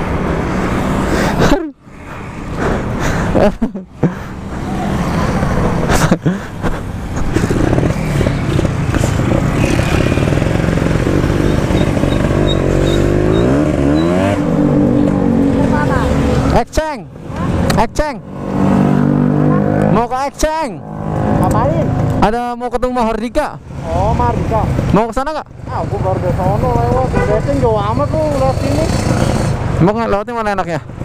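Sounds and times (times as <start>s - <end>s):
motorcycle engine running: 7.1s - 16.5s.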